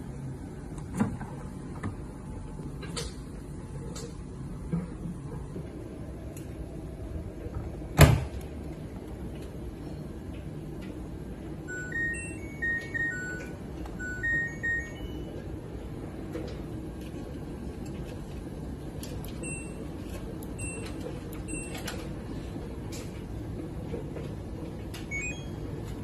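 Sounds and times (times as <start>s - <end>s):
washing machine melodic jingles: 11.5s - 15.8s, 19.3s - 22.2s, 25.0s - 26.0s
short beeps: 11.7s - 15.3s.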